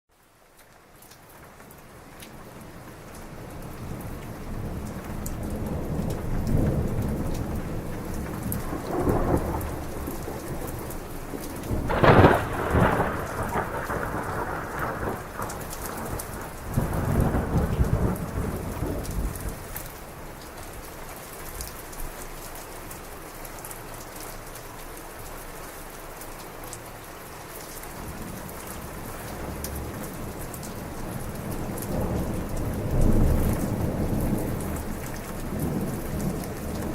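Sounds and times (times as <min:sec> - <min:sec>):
heavy rain pouring: 0:00.1 - 0:36.9
rolling thunder: 0:04.6 - 0:20.0, 0:28.0 - 0:36.9
sharp thunderclap: 0:05.6 - 0:19.7.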